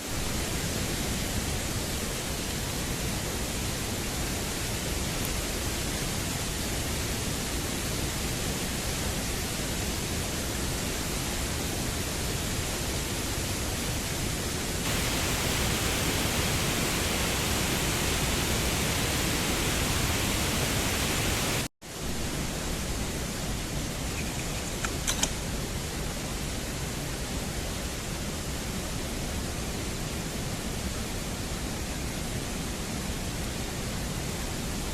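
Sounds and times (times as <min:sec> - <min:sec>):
steady rushing noise: 0:14.7 - 0:24.1.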